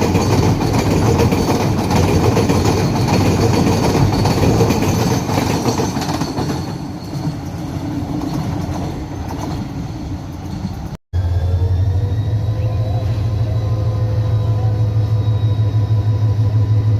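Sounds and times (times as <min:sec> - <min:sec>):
train wheels clattering on rails: 0:00.0 - 0:11.0.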